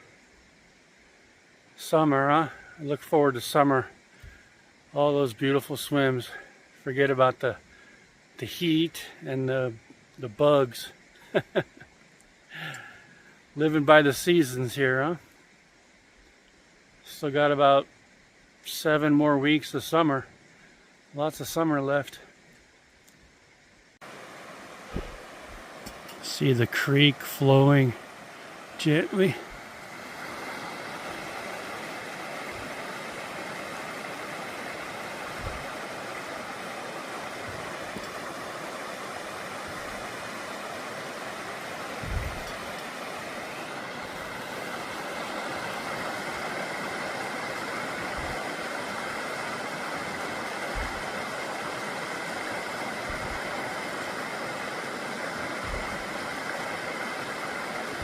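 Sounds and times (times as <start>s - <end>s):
creek water rushing: 0.0s - 58.0s
soft low thumps: 24.9s - 26.0s, 35.4s - 35.7s, 42.0s - 42.6s, 48.1s - 48.5s, 50.7s - 51.2s, 53.1s - 53.6s, 55.6s - 56.1s.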